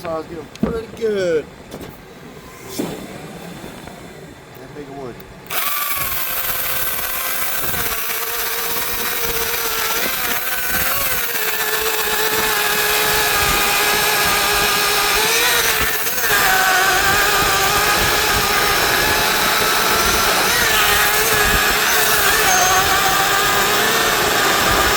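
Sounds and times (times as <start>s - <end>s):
chainsaw cutting wood: 5.4s - 24.9s.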